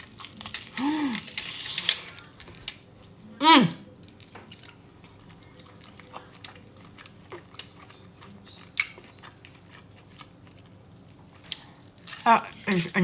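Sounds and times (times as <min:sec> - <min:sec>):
person chewing food: 0:00.0 - 0:03.2, 0:03.9 - 0:12.8.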